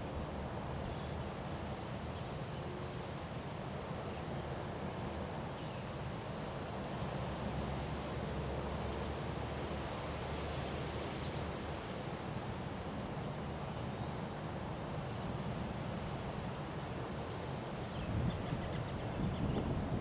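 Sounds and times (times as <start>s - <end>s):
strong wind on microphone: 18.0s - 20.0s.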